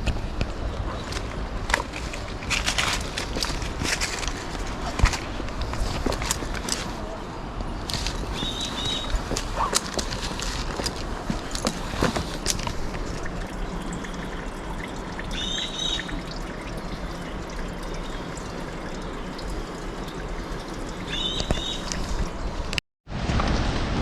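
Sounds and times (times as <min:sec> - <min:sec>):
stream water flowing: 0:00.0 - 0:22.8
bird chirps: 0:08.3 - 0:09.7, 0:15.3 - 0:16.2, 0:21.1 - 0:21.9.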